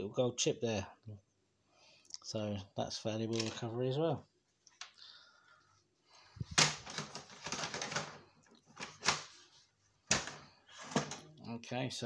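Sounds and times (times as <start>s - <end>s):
plastic parts clicking and rattling: 3.3s - 3.7s, 6.5s - 9.3s, 10.1s - 11.3s.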